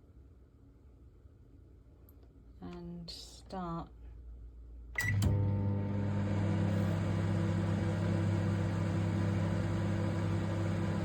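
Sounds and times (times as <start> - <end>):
microwave oven click: 5.0 - 9.6
microwave oven humming: 5.0 - 11.0.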